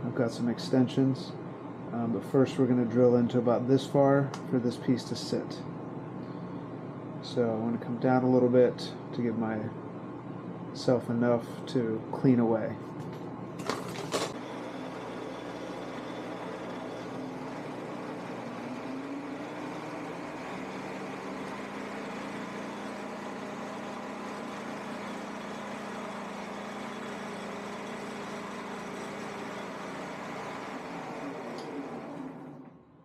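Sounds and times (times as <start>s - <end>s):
faint hum: 0.0s - 20.6s
woodworking machine running: 13.6s - 32.8s.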